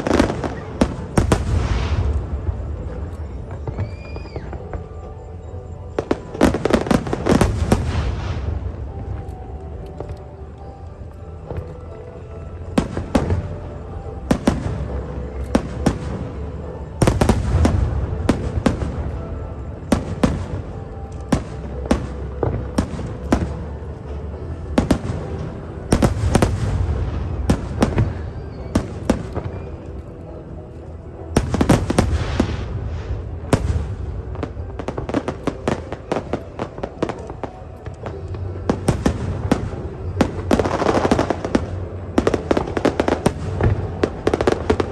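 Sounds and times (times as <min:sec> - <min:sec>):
fireworks booms: 0:00.0 - 0:05.0, 0:31.4 - 0:44.9
fireworks bangs and crackles: 0:00.0 - 0:44.9.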